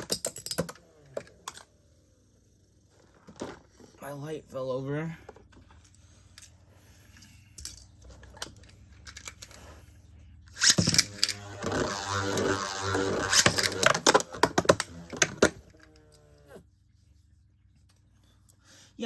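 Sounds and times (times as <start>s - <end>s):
spinning tops whirring rattle: 10.5s - 15.2s.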